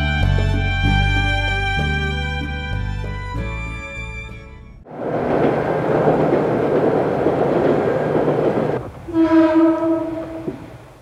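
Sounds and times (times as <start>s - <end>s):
train running: 4.8s - 11.0s
train horn blast: 9.1s - 10.8s.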